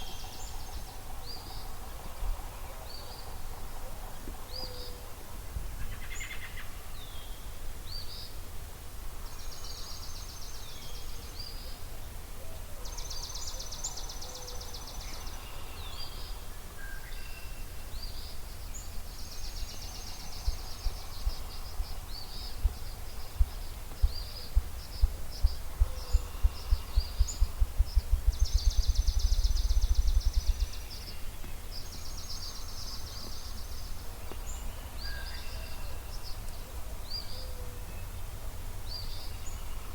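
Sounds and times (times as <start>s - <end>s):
songbirds singing trills: 0.0s - 8.4s, 9.2s - 39.9s
grouse drumming thumps: 23.4s - 30.8s.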